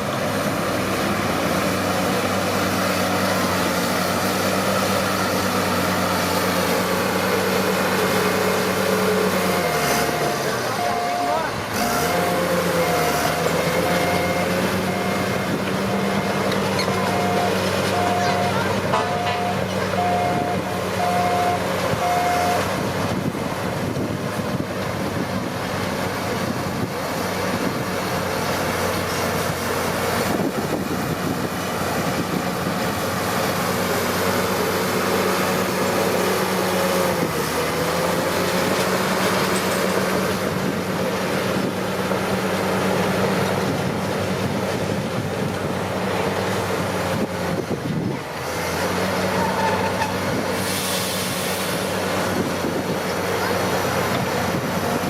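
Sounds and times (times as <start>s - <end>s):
bulldozer diesel engine running: 0.0s - 55.0s
steel tracks clattering: 15.3s - 20.9s.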